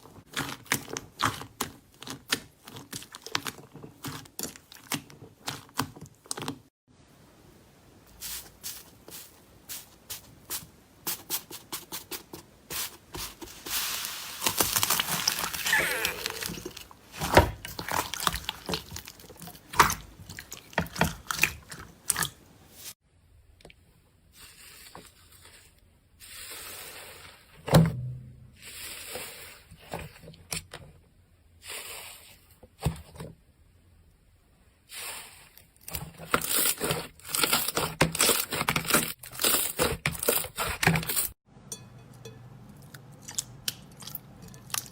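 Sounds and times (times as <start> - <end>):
slime crackling and squelching: 0.0 - 6.7, 12.8 - 23.0, 34.9 - 41.4.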